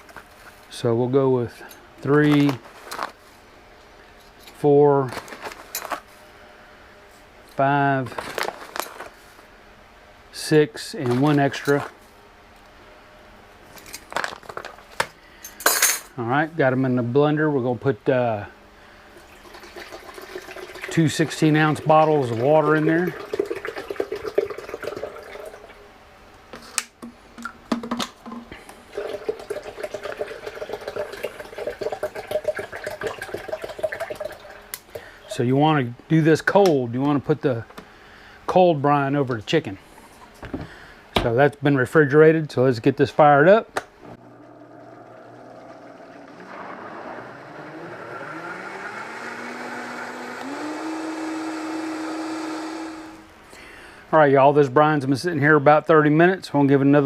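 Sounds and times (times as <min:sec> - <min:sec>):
blender motor running: 0:44.1 - 0:53.3.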